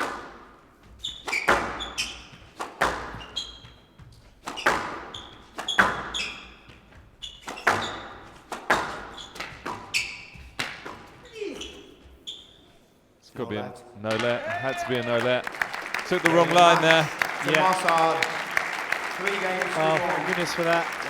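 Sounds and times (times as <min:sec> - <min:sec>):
squash ball hitting rackets and walls: 0:00.0 - 0:11.8
court shoes squeaking: 0:00.1 - 0:13.0.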